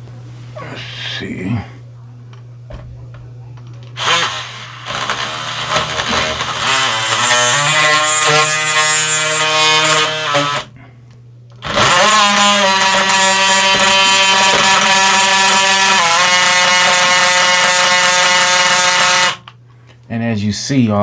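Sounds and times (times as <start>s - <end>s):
cordless drill boring wood: 4.0s - 10.7s, 11.6s - 19.5s.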